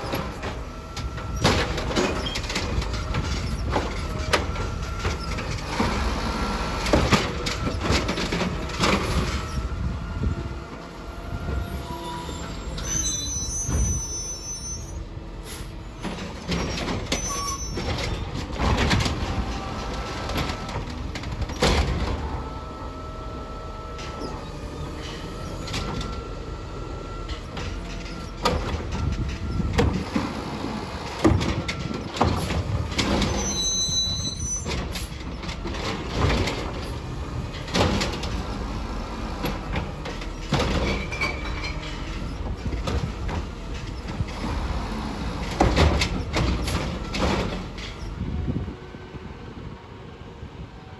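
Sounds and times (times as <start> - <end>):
diesel engine running: 0.0 - 14.2, 14.9 - 50.9
hydraulic whine: 0.0 - 48.8
short high squeal: 11.0 - 15.7, 16.8 - 18.0, 33.2 - 34.8.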